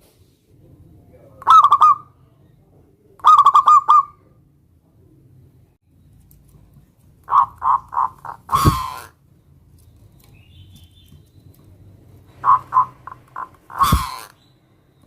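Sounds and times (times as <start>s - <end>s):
dove cooing: 1.4s - 2.1s, 7.3s - 9.2s, 12.2s - 14.3s
faint high chirp: 14.4s - 15.0s.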